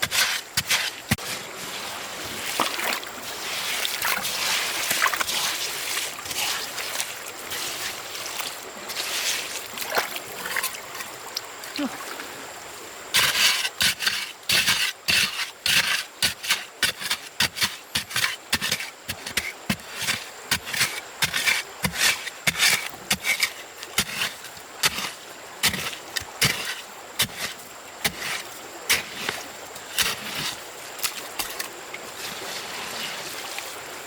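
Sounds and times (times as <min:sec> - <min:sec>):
hand tool scraping wood: 0:00.0 - 0:01.5, 0:13.2 - 0:31.7.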